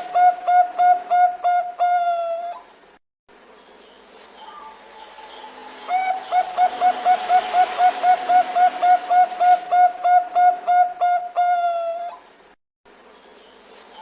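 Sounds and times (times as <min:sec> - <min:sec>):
dove cooing: 0:00.0 - 0:02.7, 0:04.4 - 0:12.3.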